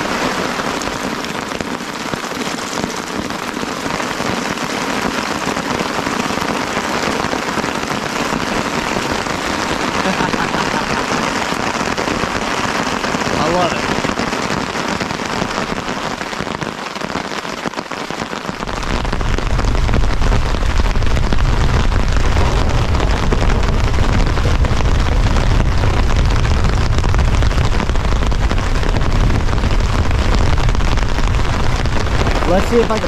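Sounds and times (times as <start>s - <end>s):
heavy rain pelting down: 0.0s - 33.0s
strong wind buffeting microphone: 18.6s - 33.0s.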